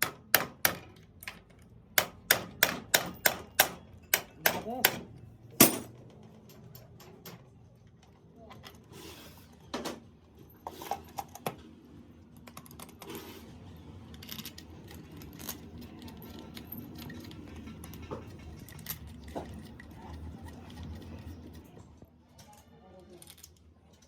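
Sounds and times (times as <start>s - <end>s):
small metal parts clinking: 5.6s - 8.9s, 14.0s - 21.8s.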